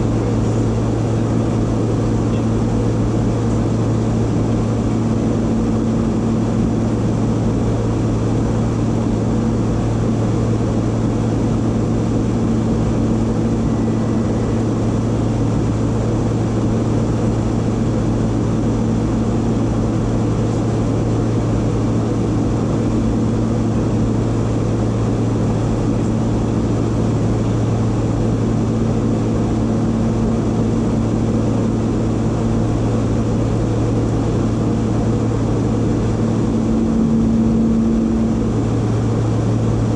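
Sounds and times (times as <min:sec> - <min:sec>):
jet engine drone: 0:00.0 - 0:39.9.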